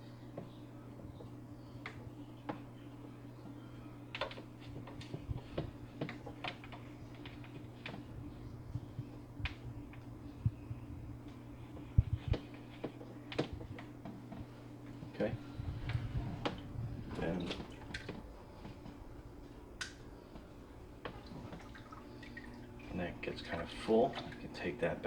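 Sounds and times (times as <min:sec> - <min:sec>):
aquarium vacuum pump humming: 0:00.0 - 0:25.0
light clicks and taps: 0:11.2 - 0:15.1.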